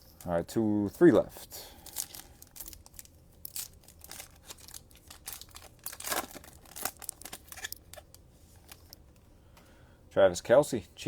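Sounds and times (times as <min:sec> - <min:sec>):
card sleeves rustling and crinkling: 0:01.8 - 0:09.0.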